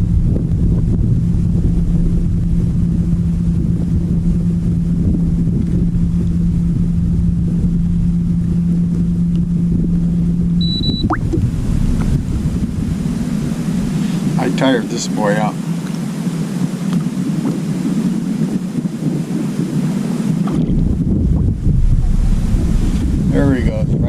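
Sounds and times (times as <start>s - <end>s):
steady low hum: 0.0s - 24.0s
wind rumbling on microphone: 0.0s - 24.0s
high beep: 10.6s - 11.4s.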